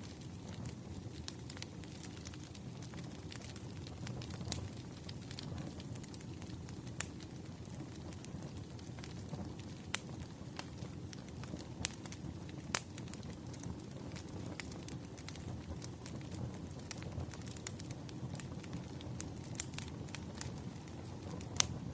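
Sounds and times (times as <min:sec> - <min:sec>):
campfire crackling: 0:00.0 - 0:21.9.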